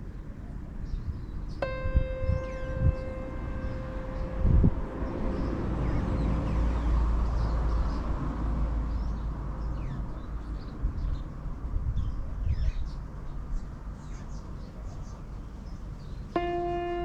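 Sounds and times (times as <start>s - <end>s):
birds chirping faintly: 0.0s - 17.0s
low rumble: 1.6s - 8.8s.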